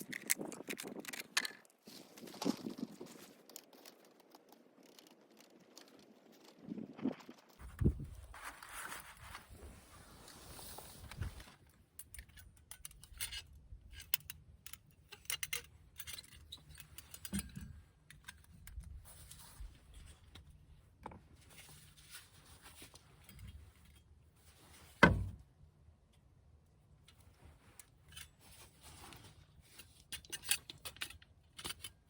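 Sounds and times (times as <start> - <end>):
metal objects clicking and rattling: 0.0 - 1.8, 11.9 - 19.0, 29.8 - 32.0.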